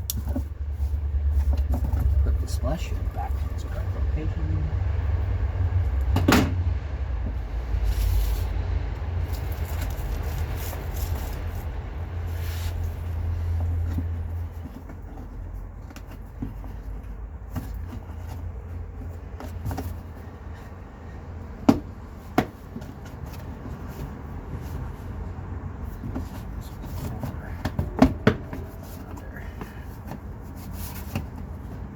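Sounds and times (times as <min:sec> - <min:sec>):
low rumble: 0:00.0 - 0:14.6.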